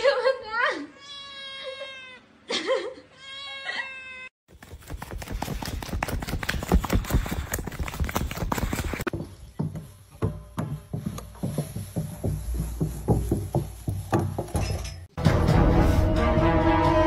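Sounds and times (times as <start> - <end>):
cat meowing: 3.2 - 4.3.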